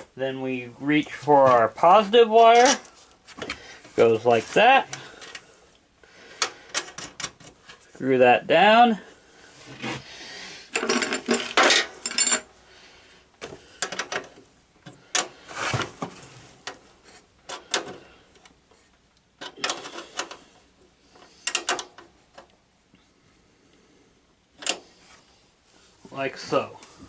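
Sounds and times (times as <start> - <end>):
hand tool clicking and scraping: 19.4 - 20.5, 21.1 - 22.5.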